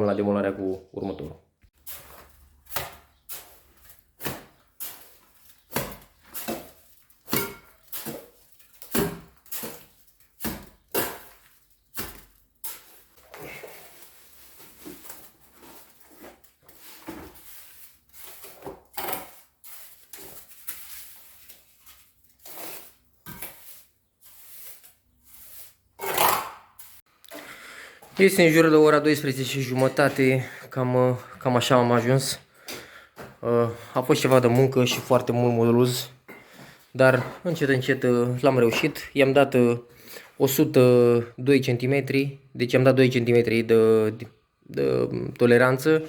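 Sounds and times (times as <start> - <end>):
trowel scraping mortar: 1.8 - 27.1.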